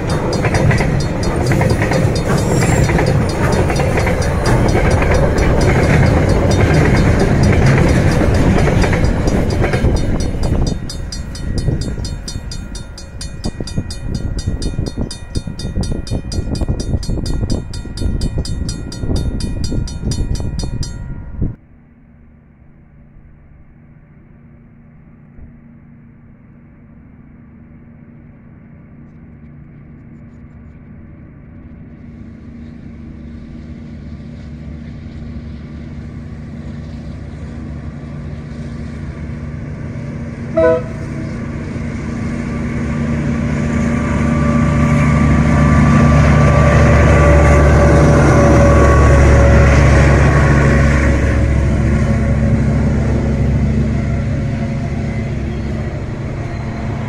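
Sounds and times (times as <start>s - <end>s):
diesel locomotive engine drone: 0.0s - 57.0s
freight train passing: 0.0s - 57.0s
train horn toot: 40.4s - 41.9s.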